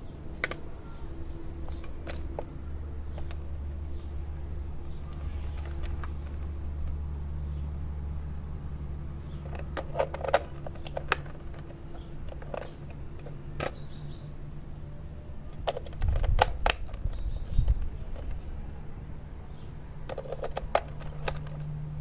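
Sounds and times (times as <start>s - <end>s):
steady low hum: 0.0s - 22.0s
sharp clicks and knocks: 9.4s - 14.0s.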